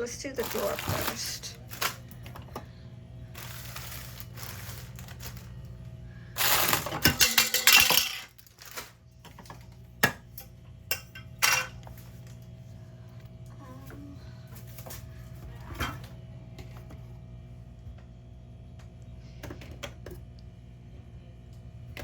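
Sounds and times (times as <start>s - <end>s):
containers clattering together: 0.4s - 2.2s, 6.4s - 8.9s.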